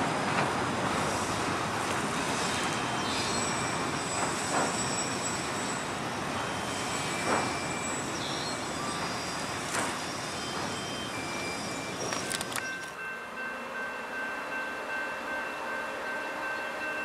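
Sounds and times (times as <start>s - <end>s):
train clack: 0.0s - 5.8s, 6.8s - 17.0s
freight train rumbling on rails: 0.0s - 17.0s
high wheel squeals: 2.2s - 13.0s.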